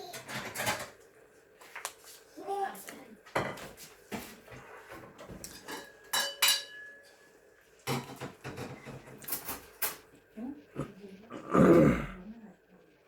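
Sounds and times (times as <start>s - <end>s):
cutlery clinking against dishes: 0.1s - 1.0s, 3.4s - 4.3s, 5.0s - 10.1s.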